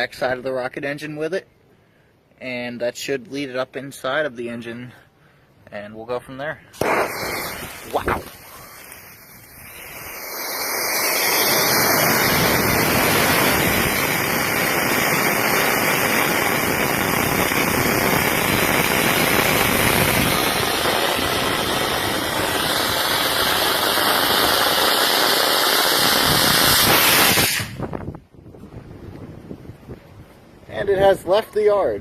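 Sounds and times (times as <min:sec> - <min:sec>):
rocket engine exhaust hiss: 0:06.7 - 0:28.1.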